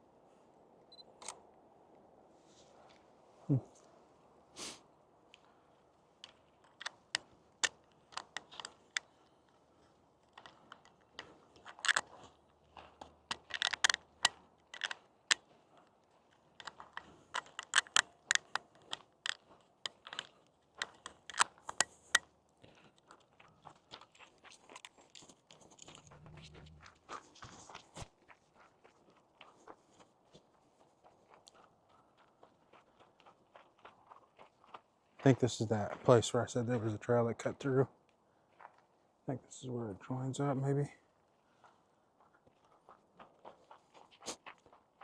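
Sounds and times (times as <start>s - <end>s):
footsteps crunching on trail: 22.6s - 35.2s.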